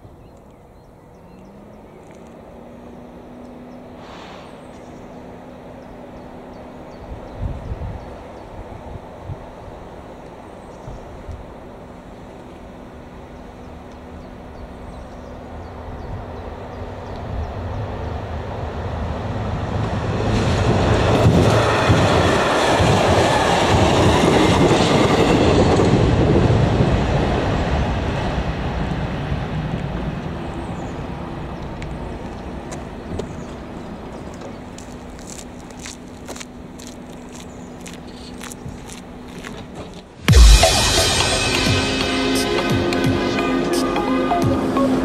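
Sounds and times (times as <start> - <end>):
diesel train passing: 0.0 - 45.0
train wheel noise: 8.0 - 45.0.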